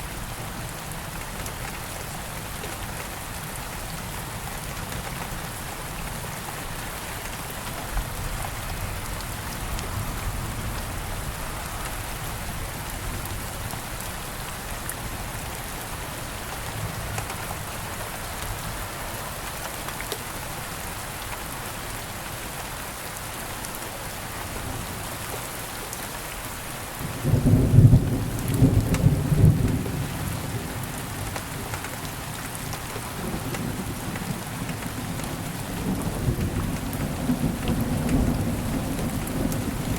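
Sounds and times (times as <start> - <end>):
steady rain: 0.0 - 39.9
low rumble of thunder: 27.0 - 31.2, 33.1 - 39.9.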